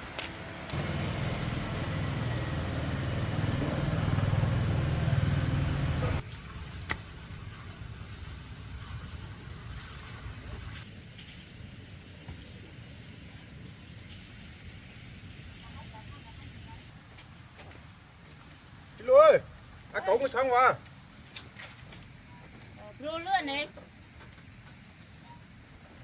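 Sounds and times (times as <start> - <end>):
engine rumbling: 0.0 - 16.9.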